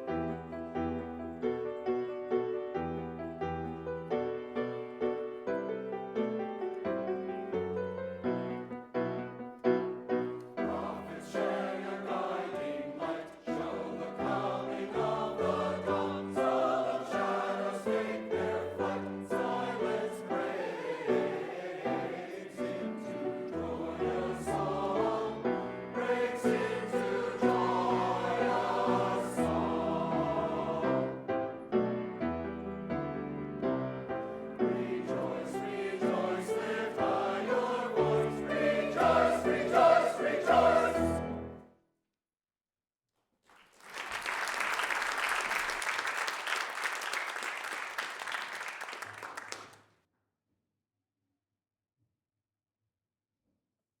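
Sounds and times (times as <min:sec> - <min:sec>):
choir singing: 0:10.6 - 0:32.7, 0:33.8 - 0:41.6.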